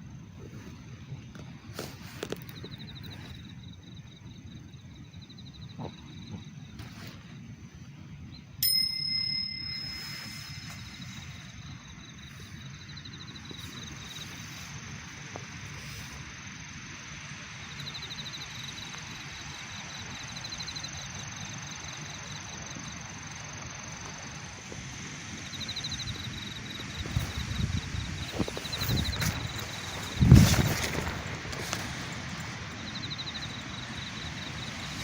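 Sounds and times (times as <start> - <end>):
metallic bell ding: 8.6 - 11.1.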